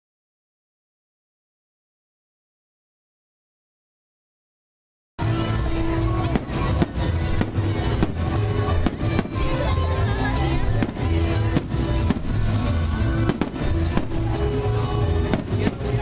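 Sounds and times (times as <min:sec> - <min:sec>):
music with heavy bass beat: 0:05.2 - 0:16.0
fireworks bangs: 0:05.6 - 0:16.0.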